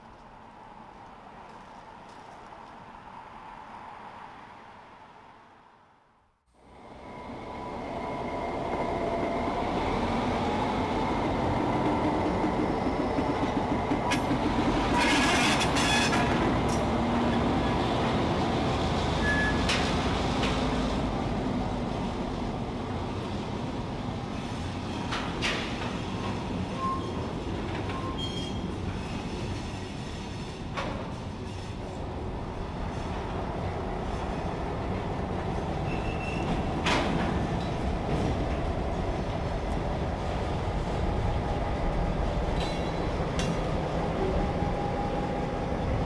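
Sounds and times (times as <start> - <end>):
train wheel noise: 7.3 - 46.0
wheel squeals: 15.0 - 16.3, 19.2 - 19.8, 26.1 - 27.3, 27.9 - 30.5, 35.8 - 36.7
locomotive engine rumble: 30.6 - 46.0.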